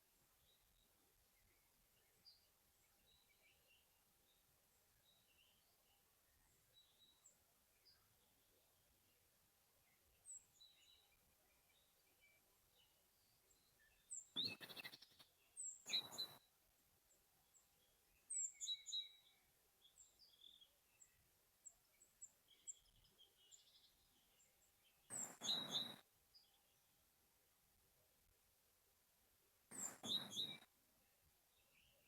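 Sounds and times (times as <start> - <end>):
birds chirping and twittering: 9.8 - 16.5, 17.4 - 26.8, 29.7 - 30.7.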